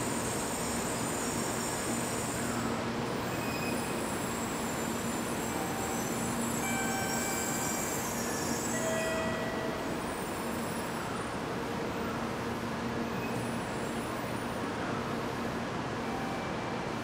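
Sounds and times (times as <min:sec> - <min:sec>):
high brake hiss: 0:00.0 - 0:12.1
train braking to a stop: 0:00.0 - 0:17.0.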